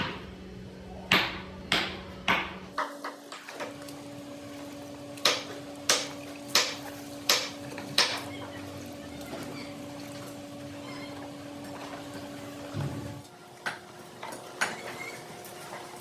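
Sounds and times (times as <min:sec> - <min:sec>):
machine hum: 0:00.0 - 0:16.0
hammer striking metal: 0:01.1 - 0:02.6.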